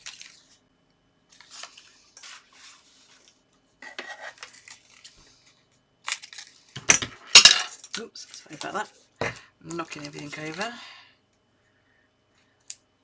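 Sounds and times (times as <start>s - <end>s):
paper rustling and scraping: 1.3s - 5.6s.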